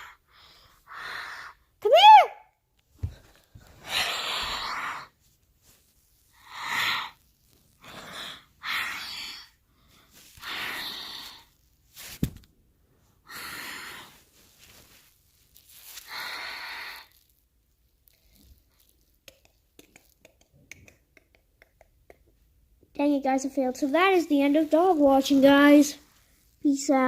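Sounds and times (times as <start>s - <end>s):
person breathing heavily: 0.0s - 1.7s, 3.4s - 5.2s, 7.8s - 11.6s, 13.2s - 14.4s.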